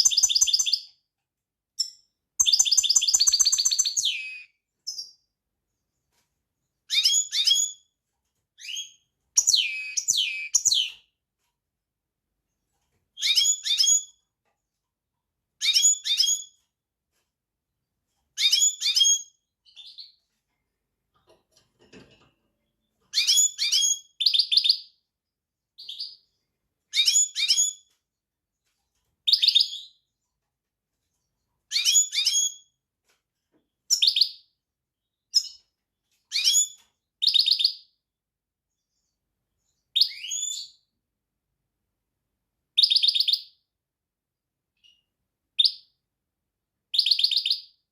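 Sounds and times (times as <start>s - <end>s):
finch chirping and trilling: 0.0s - 0.9s, 1.8s - 5.2s, 6.8s - 7.9s, 8.6s - 11.1s, 13.1s - 14.2s, 15.6s - 16.6s, 18.3s - 20.2s, 22.8s - 25.0s, 25.8s - 28.0s, 29.2s - 30.2s, 31.7s - 32.7s, 33.9s - 34.4s, 35.1s - 37.9s, 39.8s - 40.8s, 42.8s - 43.6s, 46.9s - 47.7s.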